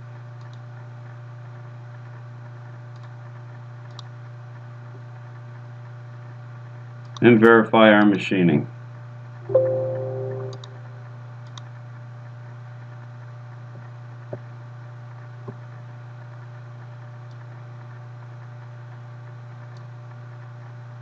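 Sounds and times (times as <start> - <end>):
two-note chime: 9.5 - 10.8.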